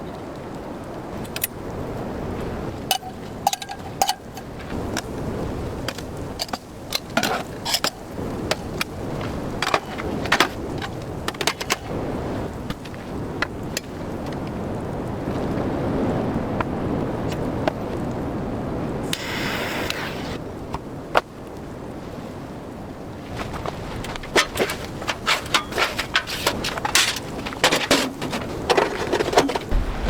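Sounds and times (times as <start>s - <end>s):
wind-like rush: 0.0s - 30.0s
sharp clicks and knocks: 23.5s - 30.0s.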